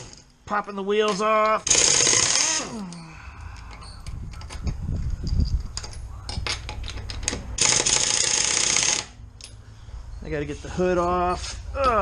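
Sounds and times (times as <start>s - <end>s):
impact wrench whine: 1.6s - 3.0s, 7.3s - 9.2s
metal knocks and clicks: 3.6s - 7.6s.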